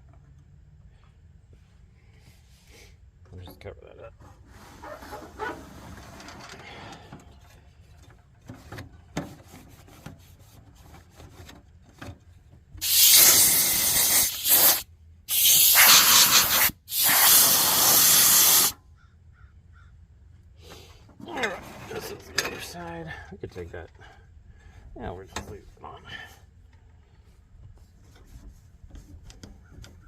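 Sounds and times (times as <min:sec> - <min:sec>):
air blowgun hissing bursts: 0:12.8 - 0:18.8.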